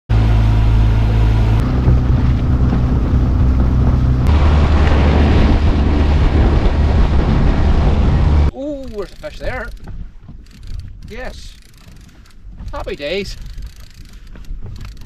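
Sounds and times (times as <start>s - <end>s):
motor humming: 0.1s - 8.5s
wind rush on microphone: 1.1s - 8.5s.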